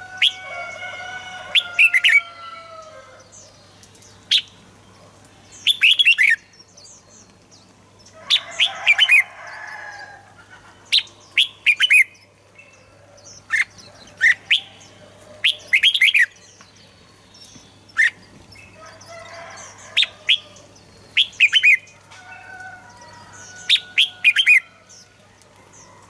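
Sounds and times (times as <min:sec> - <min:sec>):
bird whistling song: 0:05.6 - 0:06.5, 0:11.0 - 0:12.2, 0:20.0 - 0:21.9.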